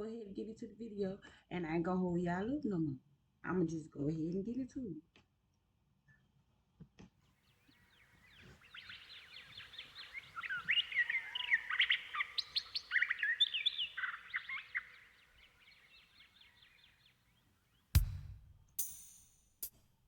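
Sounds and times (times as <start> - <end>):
birds chirping: 7.7 - 18.1.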